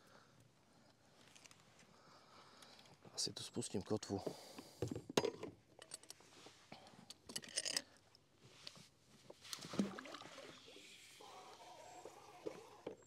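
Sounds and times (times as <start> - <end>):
gear handled in a kayak: 8.5 - 10.0.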